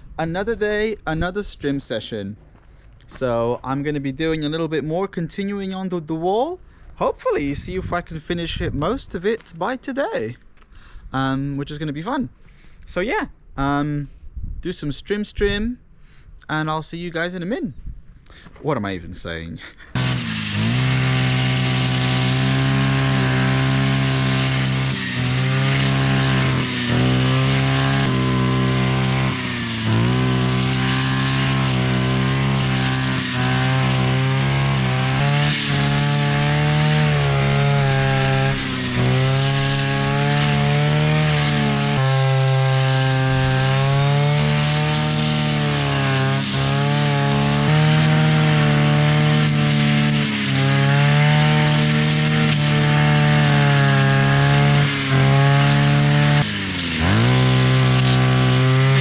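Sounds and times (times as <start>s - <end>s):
strimmer engine cutting brambles: 19.6s - 59.0s.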